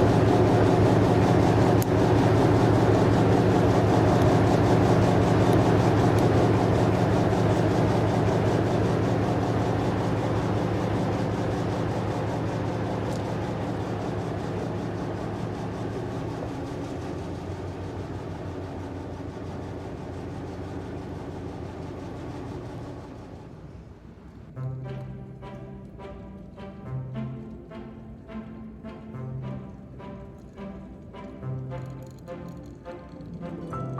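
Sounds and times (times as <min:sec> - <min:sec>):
model train motor hum: 0:00.0 - 0:24.5, 0:29.7 - 0:33.9.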